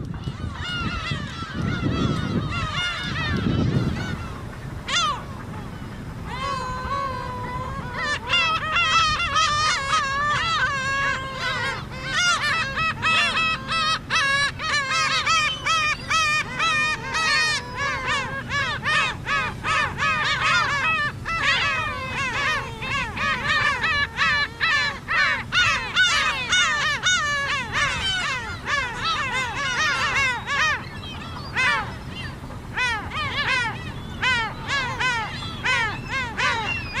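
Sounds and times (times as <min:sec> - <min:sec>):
flock of gulls calling: 0:00.0 - 0:37.0.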